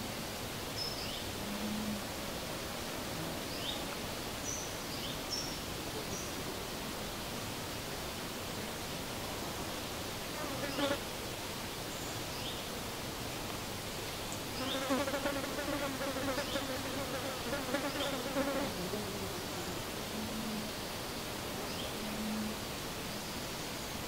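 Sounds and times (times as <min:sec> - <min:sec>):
outdoor hiss: 0:00.0 - 0:24.0
flying insect buzzing: 0:14.6 - 0:20.7.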